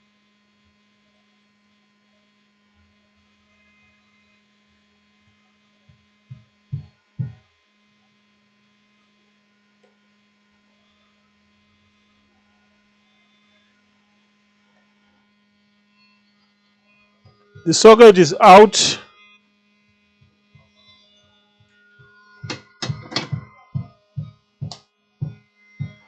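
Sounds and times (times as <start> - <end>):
electrical mains hum: 17.3 - 19.0, 22.4 - 26.0.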